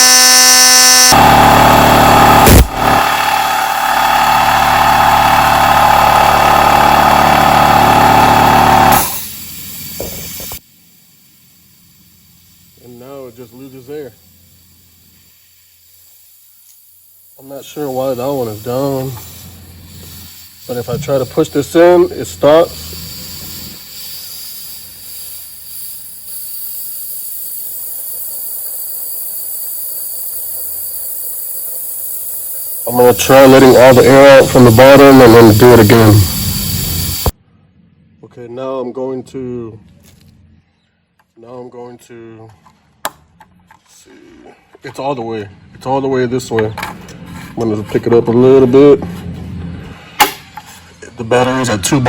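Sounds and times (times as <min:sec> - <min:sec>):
air compressor motor running: 0:00.0 - 0:37.4
soft air hiss: 0:09.2 - 0:34.0.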